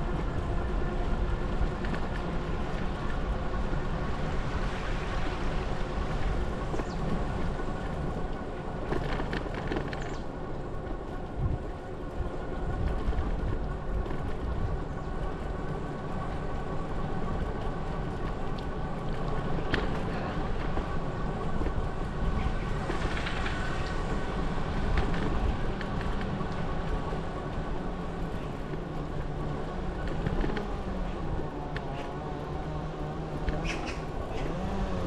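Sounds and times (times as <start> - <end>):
wind and tyre rumble: 0.0 - 35.0
bicycle clicks and rattles: 7.8 - 32.2.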